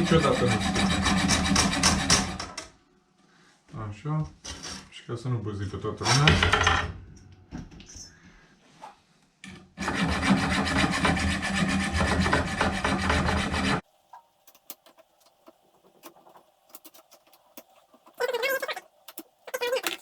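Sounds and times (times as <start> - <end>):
hacksaw cutting metal: 0.0 - 2.6, 9.8 - 13.8.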